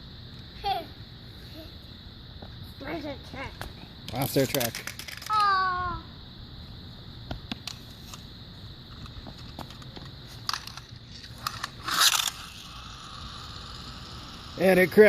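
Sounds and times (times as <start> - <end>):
plastic toy trucks clicking: 4.1 - 5.5, 10.4 - 12.9
toy truck crashing: 4.2 - 5.5, 10.4 - 14.6.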